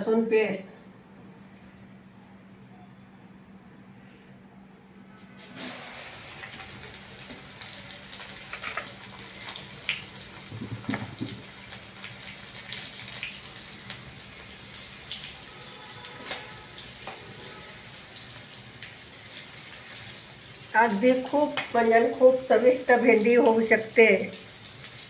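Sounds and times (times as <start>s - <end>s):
food sizzling in hot oil: 5.4s - 25.0s
clicks of pieces in pan: 8.2s - 11.5s
knock in pan: 10.5s - 11.5s.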